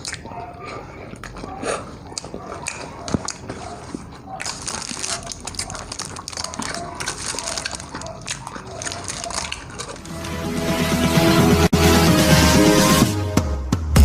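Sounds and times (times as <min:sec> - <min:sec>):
wet chewing and crunching: 0:00.0 - 0:10.4
music: 0:10.0 - 0:14.0.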